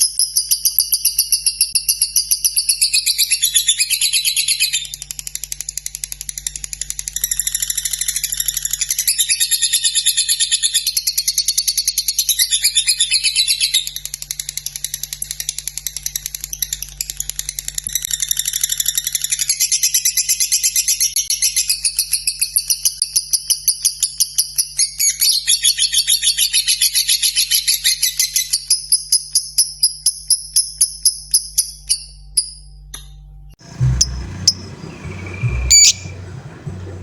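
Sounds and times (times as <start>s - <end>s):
lovebird chattering trill: 33.6s - 37.0s.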